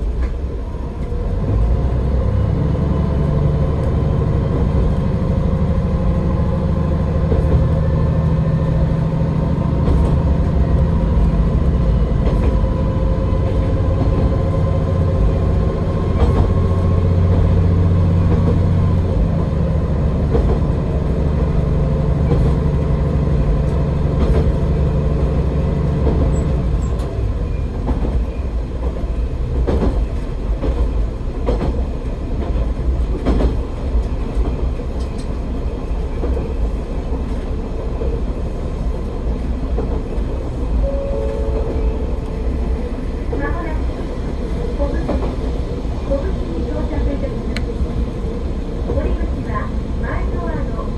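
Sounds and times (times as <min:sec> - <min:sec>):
diesel railcar engine droning: 0:00.0 - 0:50.9
railcar running noise: 0:00.0 - 0:50.9
wheels clicking over rail joints: 0:03.7 - 0:40.8.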